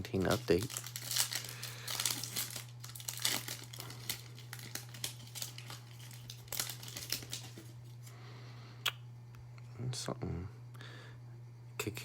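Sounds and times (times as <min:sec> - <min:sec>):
wrapper crinkling and tearing: 0:00.0 - 0:08.0.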